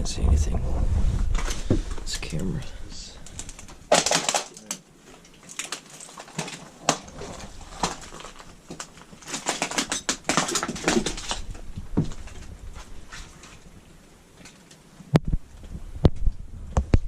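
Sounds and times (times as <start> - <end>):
footsteps crunching over debris: 3.3 - 13.8.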